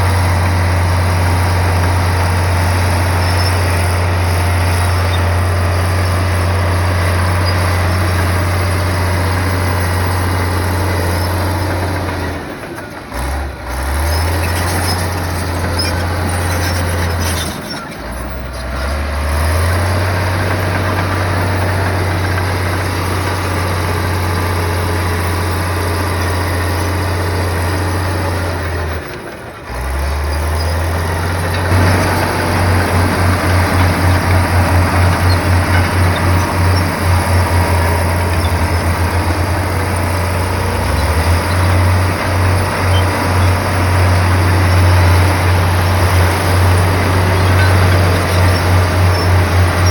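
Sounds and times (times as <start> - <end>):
bulldozer diesel engine droning: 0.0 - 49.9.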